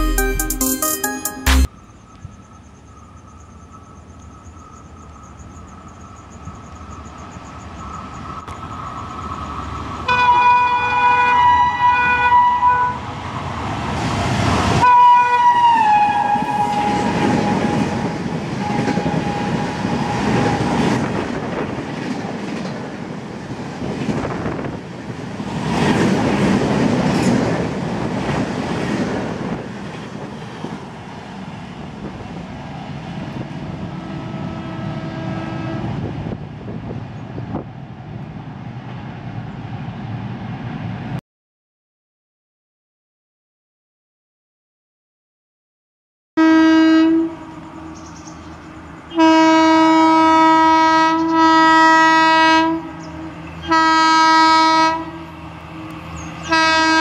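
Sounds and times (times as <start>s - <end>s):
train rushing past: 3.3s - 41.2s, 46.4s - 57.0s
train horn: 10.1s - 13.1s, 14.8s - 21.0s, 33.9s - 36.1s, 46.4s - 48.0s, 49.1s - 57.0s.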